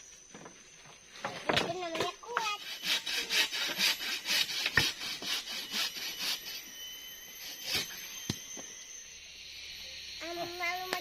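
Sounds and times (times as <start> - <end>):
hand saw cutting wood: 2.3 - 6.6.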